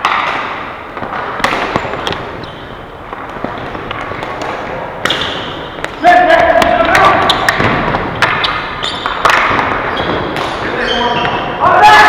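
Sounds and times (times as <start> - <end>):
sticks and ball cracking: 0.0 - 11.4.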